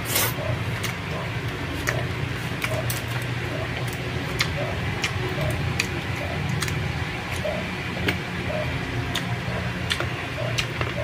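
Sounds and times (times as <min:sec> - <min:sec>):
steady low hum: 0:00.0 - 0:11.0
chewing with mouth clicks: 0:00.2 - 0:11.0.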